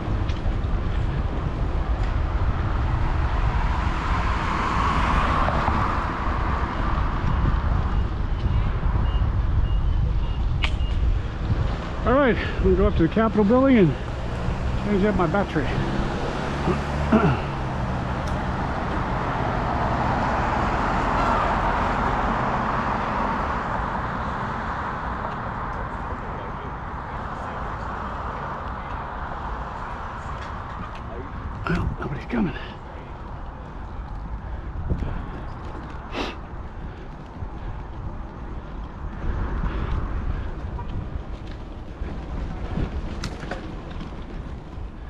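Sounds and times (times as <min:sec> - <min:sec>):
wind buffeting microphone: 0:00.0 - 0:24.3, 0:25.0 - 0:45.0
road traffic: 0:00.0 - 0:45.0
vehicle passing: 0:11.1 - 0:45.0.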